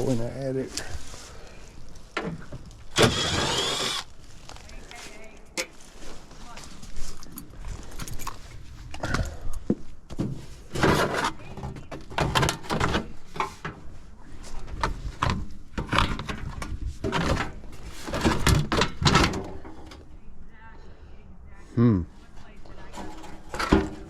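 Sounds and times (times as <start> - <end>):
hard objects clunking and rattling: 2.0 - 4.1, 7.2 - 20.1, 22.8 - 24.0.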